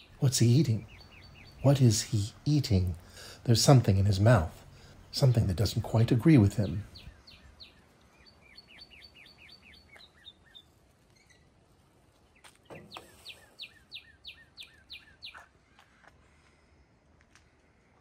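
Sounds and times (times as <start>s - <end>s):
songbird whistling: 0.8s - 1.7s, 6.9s - 11.5s, 12.7s - 15.5s.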